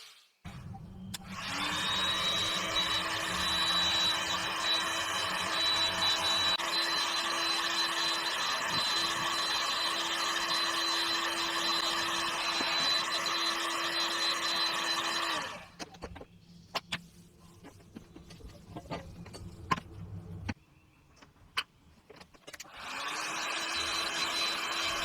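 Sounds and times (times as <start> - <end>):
small electric motor running: 0.5 - 15.8, 22.7 - 25.0
handling clicks and knocks: 15.8 - 22.7.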